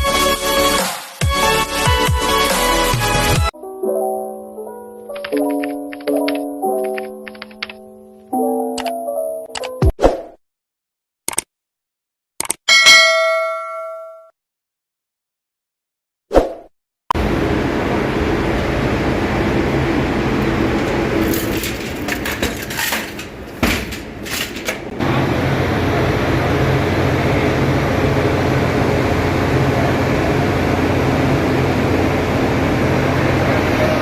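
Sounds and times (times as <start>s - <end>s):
sharp metallic knocks: 12.7s - 14.2s
engine room machinery drone: 17.2s - 34.0s.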